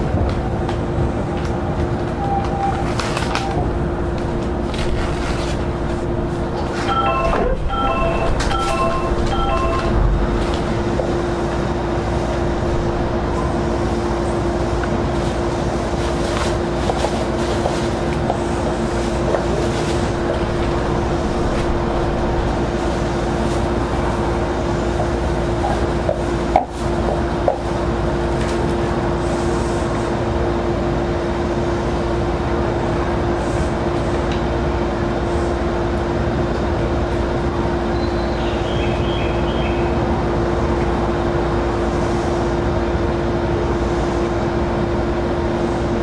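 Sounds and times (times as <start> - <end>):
train wheels rumbling on rail: 0.0 - 46.0
steady hum: 2.9 - 46.0
electronic chime tones: 6.8 - 10.3.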